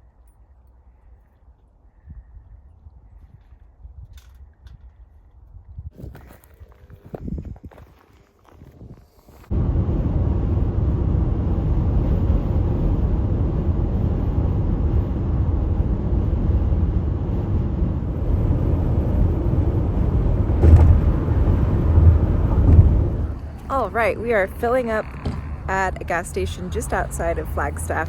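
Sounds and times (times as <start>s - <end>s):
car driving rumble: 9.0s - 28.0s
car bump: 20.5s - 26.9s.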